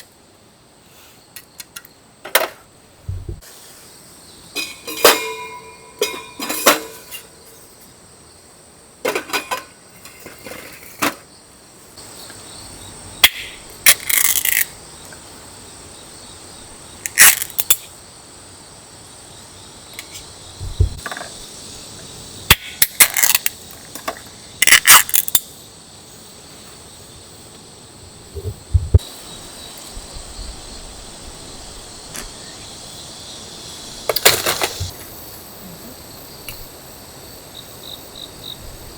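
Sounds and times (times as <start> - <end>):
crickets chirping: 0.0 - 38.9
objects knocking and clattering: 2.3 - 3.4, 20.6 - 21.4.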